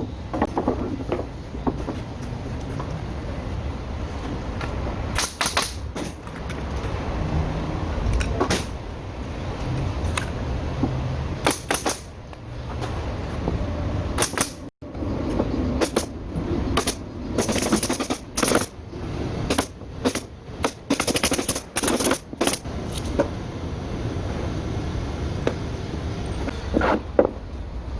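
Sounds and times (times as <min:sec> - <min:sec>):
nail gun shots: 0:05.2 - 0:06.2, 0:11.4 - 0:12.1, 0:14.2 - 0:14.6, 0:16.8 - 0:18.7, 0:19.5 - 0:22.6
steady low rumble: 0:22.3 - 0:26.6.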